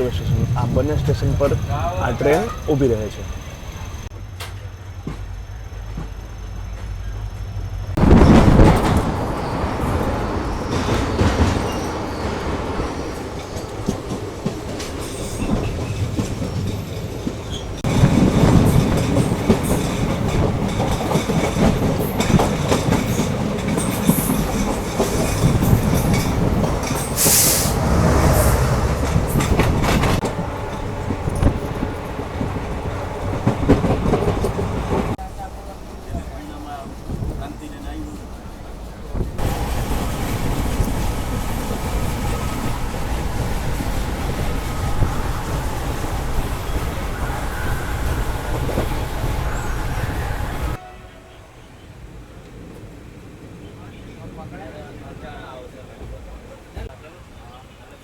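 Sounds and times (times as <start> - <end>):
train wheels clattering on track: 0.0 - 50.8
high-pitched hiss or squeal: 42.3 - 50.8.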